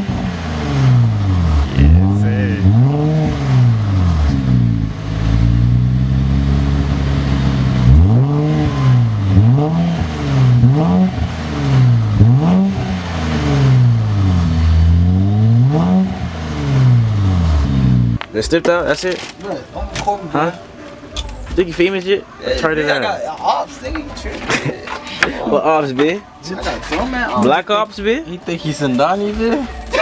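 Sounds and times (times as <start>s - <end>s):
engine revving in short blips: 0.0s - 18.2s
car engine idling: 0.0s - 19.0s.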